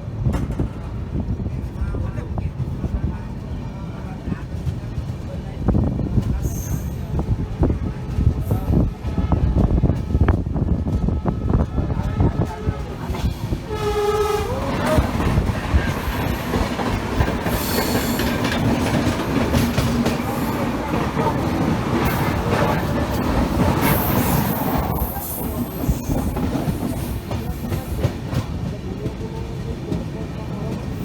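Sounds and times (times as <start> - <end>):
train rumbling on track: 0.0 - 31.0
train horn: 7.6 - 15.4
wheels clattering over rail joints: 14.6 - 25.0.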